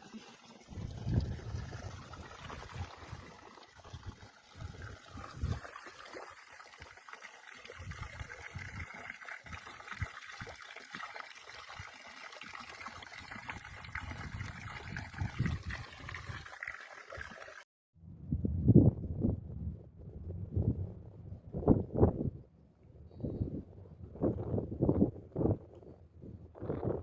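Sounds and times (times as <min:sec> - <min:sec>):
stream water trickling: 0:00.0 - 0:17.6
wind buffeting microphone: 0:00.7 - 0:03.2, 0:13.6 - 0:16.3, 0:18.0 - 0:27.0.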